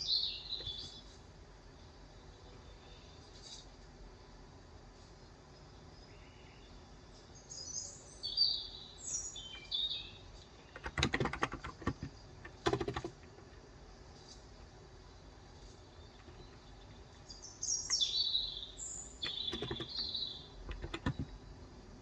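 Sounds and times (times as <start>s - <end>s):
birds chirping: 0.0s - 4.0s, 4.9s - 22.0s
keyboard typing: 10.6s - 13.6s, 16.0s - 16.8s, 19.2s - 21.5s.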